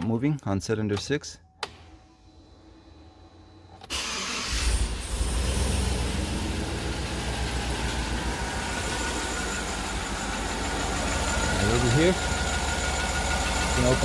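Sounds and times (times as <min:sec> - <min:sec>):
engine cranking and idling: 0:03.3 - 0:14.0.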